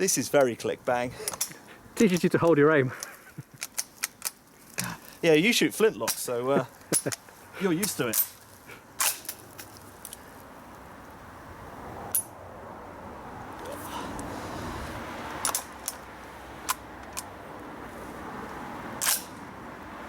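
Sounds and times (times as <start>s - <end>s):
rifle bolt metallic clicks: 3.0s - 4.4s, 15.4s - 16.0s, 19.0s - 19.4s.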